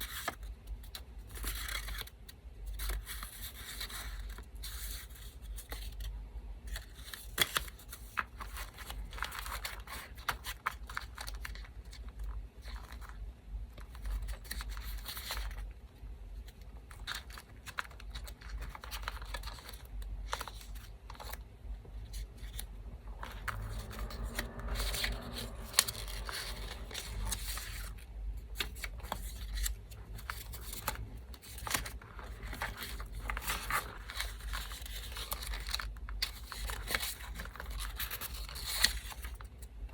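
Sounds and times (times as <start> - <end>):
electric fan humming: 19.8 - 34.1
paper rustling and tearing: 22.1 - 39.5.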